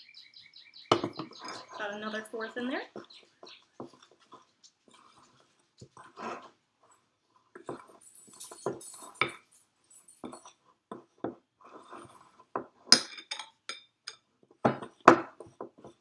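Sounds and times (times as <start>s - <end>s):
spoon clinking against bowl: 8.0s - 10.5s.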